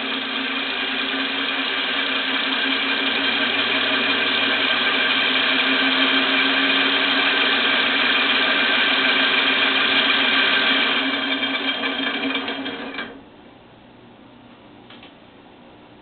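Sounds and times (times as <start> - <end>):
compressed-air engine running: 0.0 - 12.4.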